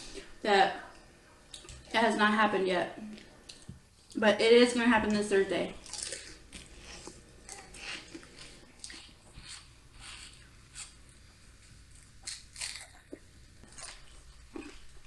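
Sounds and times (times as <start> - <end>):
person chewing crunchy food: 5.8 - 15.0.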